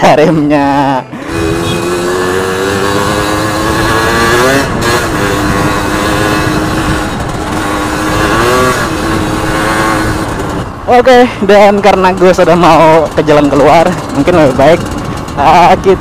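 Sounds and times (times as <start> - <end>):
wind noise on microphone: 1.2 - 11.0
two-stroke motorcycle engine running: 1.2 - 16.0.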